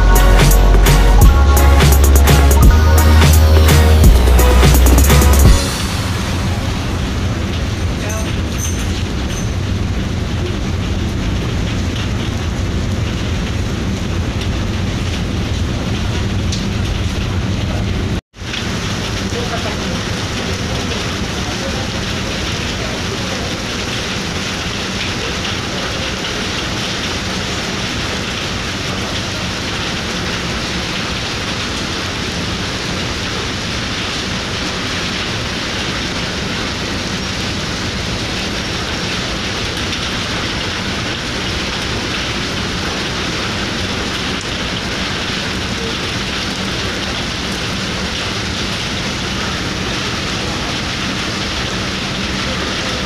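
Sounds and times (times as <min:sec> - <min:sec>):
ship engines humming: 0:00.0 - 0:08.5.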